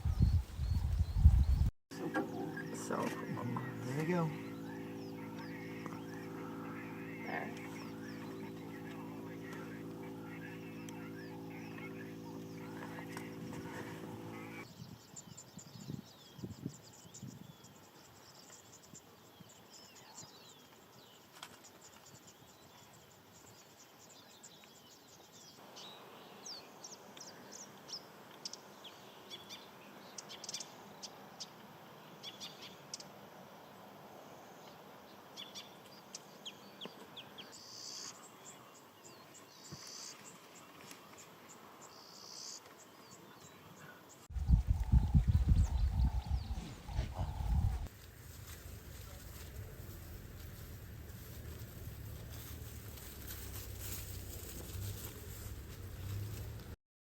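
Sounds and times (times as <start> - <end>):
birds chirping: 0.0 - 15.0, 35.5 - 48.0
buzzy bird calls: 2.4 - 14.6, 44.3 - 47.9.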